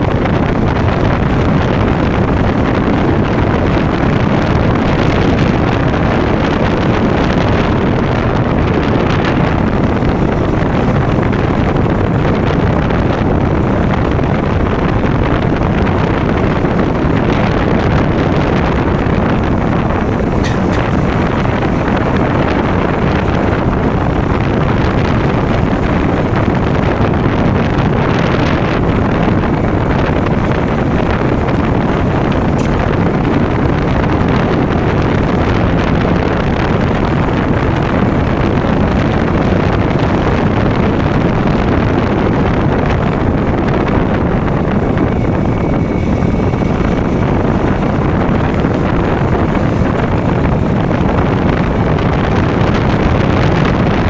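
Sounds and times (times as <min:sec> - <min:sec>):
motorcycle engine running: 0:00.0 - 0:54.0
wind on microphone: 0:00.0 - 0:54.0.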